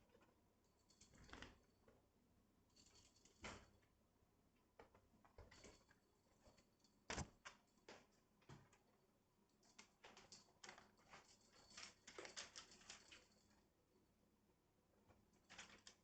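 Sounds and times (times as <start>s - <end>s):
light clicks and scratches: 9.5s - 13.6s, 15.0s - 16.0s.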